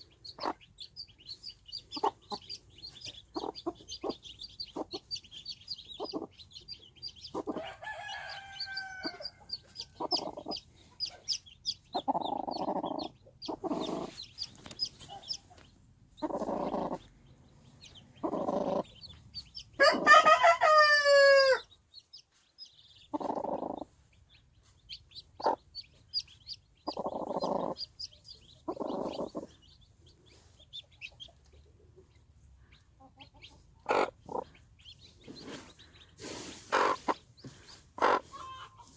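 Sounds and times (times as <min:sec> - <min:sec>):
hen clucking: 0:00.0 - 0:21.7, 0:22.6 - 0:38.9
chicks peeping: 0:00.0 - 0:38.9
rooster crowing: 0:07.5 - 0:09.5, 0:19.8 - 0:21.7.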